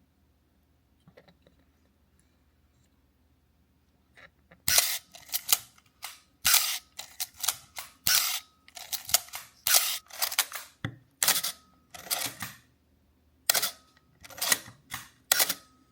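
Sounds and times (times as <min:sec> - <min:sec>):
film advance lever winding: 0:04.7 - 0:12.6, 0:13.5 - 0:15.6
camera shutter and mirror firing: 0:04.7 - 0:12.7, 0:13.5 - 0:15.7.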